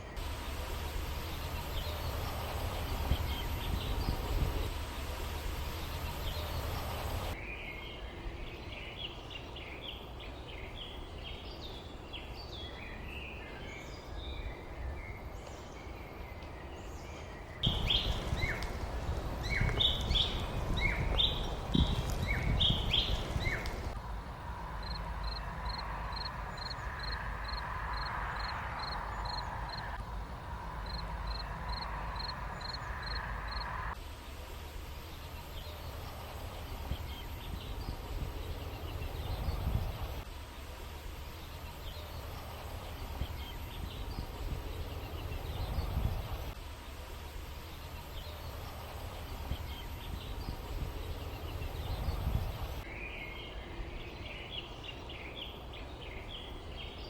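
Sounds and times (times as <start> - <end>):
small birds chirping: 0.0 - 24.0, 41.2 - 57.0
low steady wind rumble: 0.0 - 57.0.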